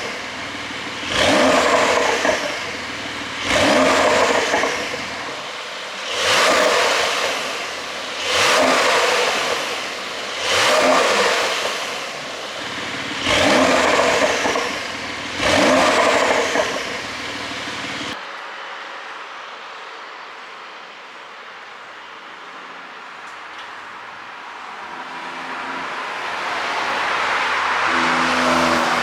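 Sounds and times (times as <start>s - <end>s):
car engine revving: 0.0s - 18.2s, 24.7s - 29.0s.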